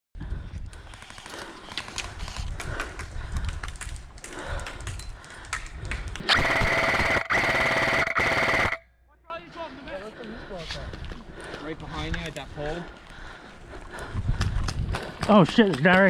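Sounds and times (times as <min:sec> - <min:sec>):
airsoft rifle firing full auto: 0:06.3 - 0:08.8.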